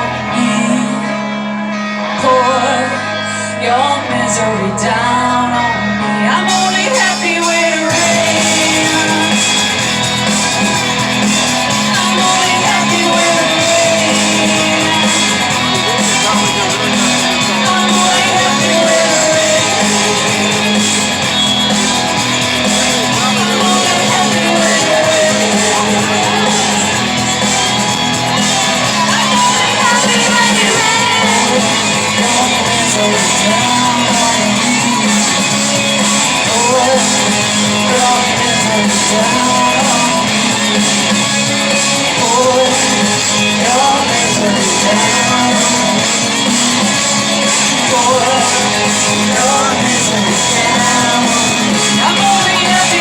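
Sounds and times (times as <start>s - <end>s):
electric guitars: 0.0s - 53.0s
person singing: 0.0s - 53.0s
rock band playing: 0.0s - 53.0s.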